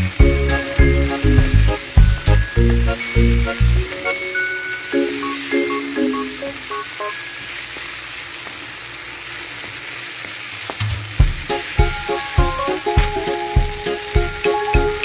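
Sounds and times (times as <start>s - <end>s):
music with steady beat: 0.0s - 7.2s, 10.8s - 15.0s
onions sizzling in hot oil: 0.0s - 15.0s.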